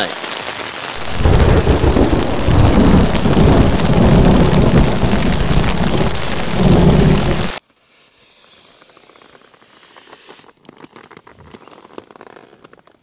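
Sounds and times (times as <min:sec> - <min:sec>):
heavy rain on a tent: 0:00.0 - 0:07.6
rolling thunder: 0:01.0 - 0:07.6.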